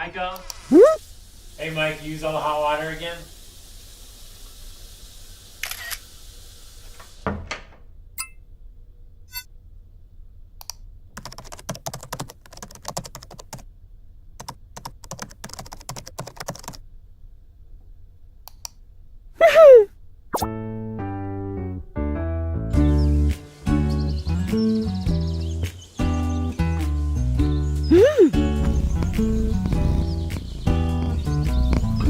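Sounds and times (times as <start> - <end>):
music: 20.4 - 32.0
sharp clicks and taps: 28.6 - 32.0.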